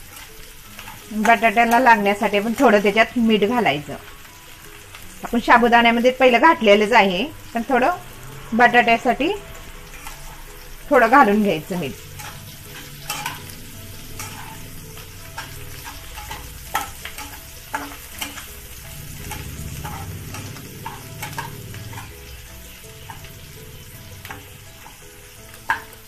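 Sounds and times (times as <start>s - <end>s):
steel spatula scraping a pan: 0.0s - 3.1s, 9.8s - 26.0s
potatoes sizzling in ghee: 0.0s - 26.0s.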